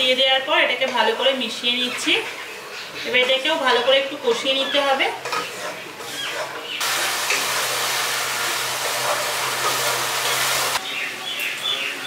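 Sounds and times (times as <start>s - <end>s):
paste sizzling in oil: 6.8s - 10.8s.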